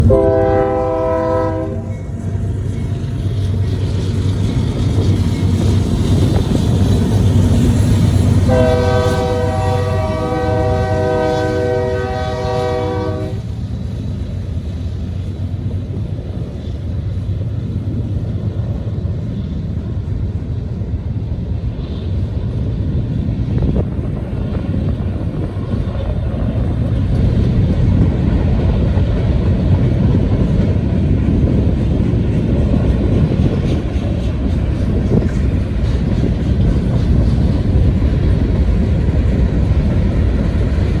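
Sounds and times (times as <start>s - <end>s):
locomotive air horn blast: 0.0s - 2.0s, 8.4s - 13.5s
freight train rumble: 0.0s - 41.0s.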